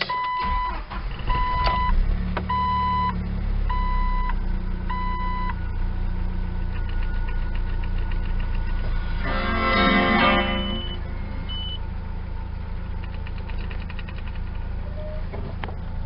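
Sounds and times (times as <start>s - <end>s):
dashboard warning chime beeping: 0.0s - 5.6s, 6.8s - 11.8s
car engine idling: 0.4s - 16.0s
music: 9.2s - 11.0s.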